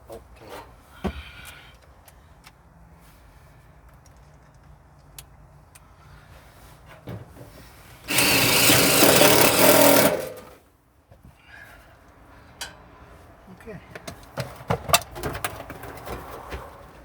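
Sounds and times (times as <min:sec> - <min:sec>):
power drill driving screw into metal: 0:08.1 - 0:10.6.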